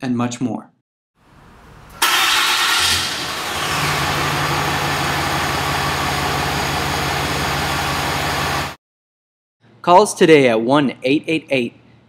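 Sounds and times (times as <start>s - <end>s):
pickup truck engine idling: 3.1s - 8.8s.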